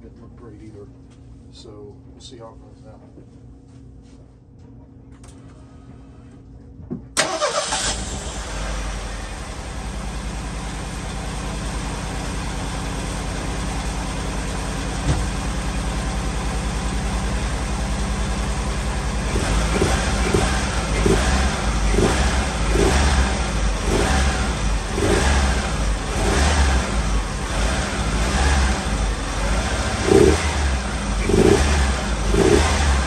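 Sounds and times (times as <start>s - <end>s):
car engine starting and idling: 7.2s - 33.0s.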